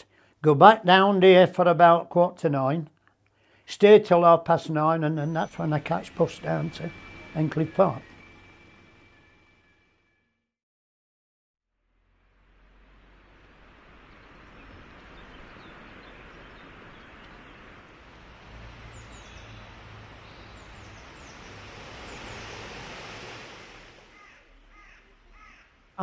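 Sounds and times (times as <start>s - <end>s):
small birds chirping: 4.6s - 8.3s, 13.4s - 25.8s
steady rushing background noise: 5.4s - 9.6s, 12.8s - 24.7s.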